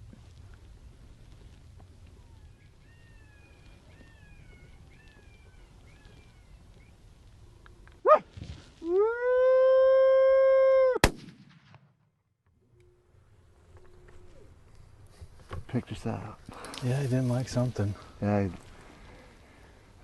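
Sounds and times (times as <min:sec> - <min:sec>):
coyote-style howl: 0:08.8 - 0:11.0
sharp crack: 0:11.0 - 0:12.0.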